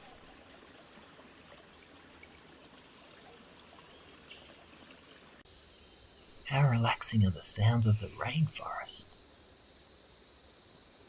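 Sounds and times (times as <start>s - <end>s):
stream flowing: 0.0s - 5.5s, 6.3s - 9.1s.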